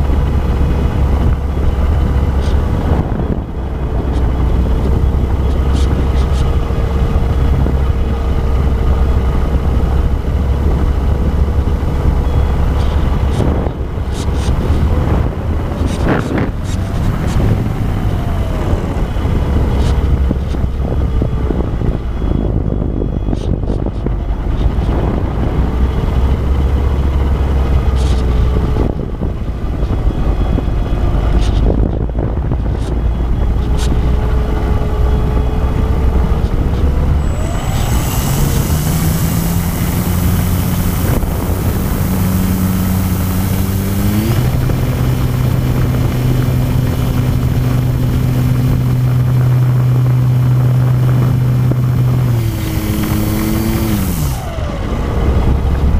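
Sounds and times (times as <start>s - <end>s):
wind rush: 0.0s - 55.9s
model plane motor whine: 34.2s - 54.7s.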